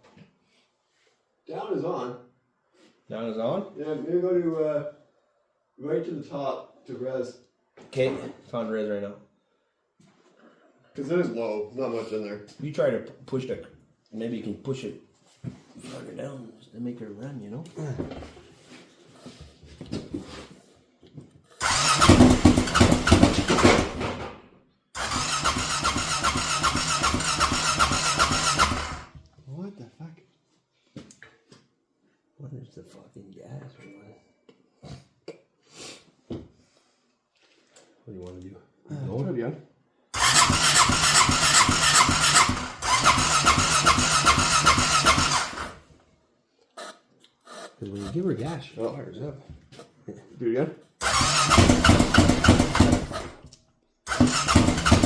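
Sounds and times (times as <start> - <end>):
engine cranking: 21.6 - 24.0, 25.0 - 29.1, 40.2 - 45.8, 51.0 - 53.4, 54.1 - 55.0
engine sputtering: 21.6 - 24.0, 25.0 - 29.1, 40.2 - 45.8, 51.0 - 53.4, 54.1 - 55.0.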